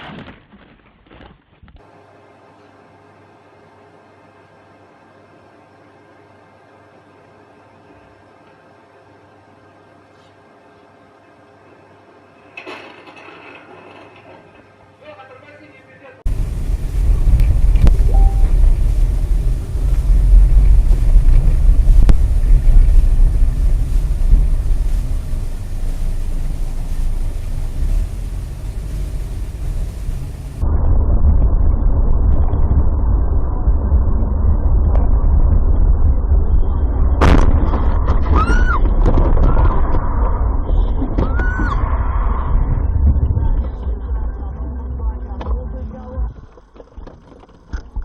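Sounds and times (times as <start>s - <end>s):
vehicle road and engine rumble: 16.3s - 46.5s.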